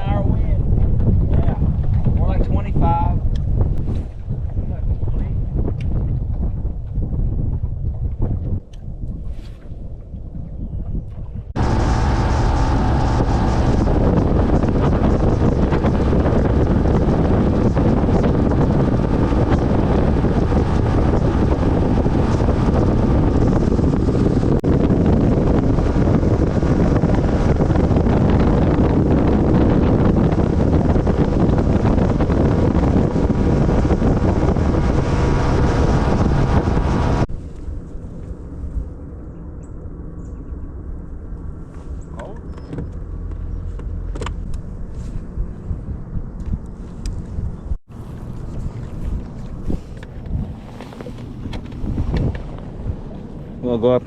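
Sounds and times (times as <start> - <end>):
low hum: 0.0 - 54.0
wind buffeting microphone: 0.0 - 54.0
outboard motor running: 11.6 - 37.3, 47.9 - 53.9.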